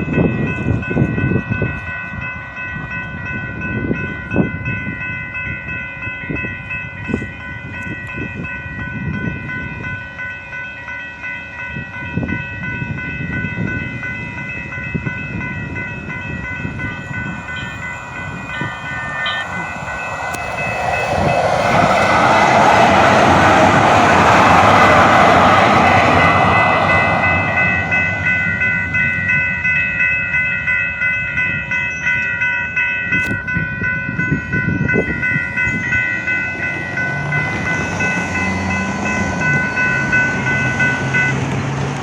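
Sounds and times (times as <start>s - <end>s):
train whine: 0.0s - 42.0s
loud rushing noise: 16.5s - 29.3s.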